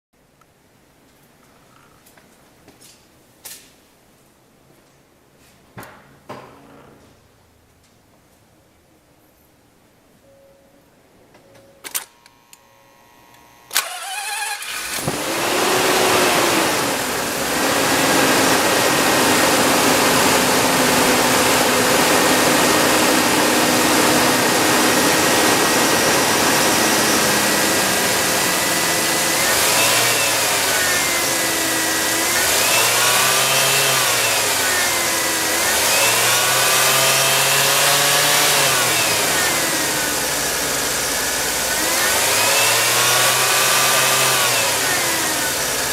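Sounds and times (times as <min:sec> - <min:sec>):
engine revving: 0:13.7 - 0:45.9
rotary engine cranking and idling: 0:13.7 - 0:45.9.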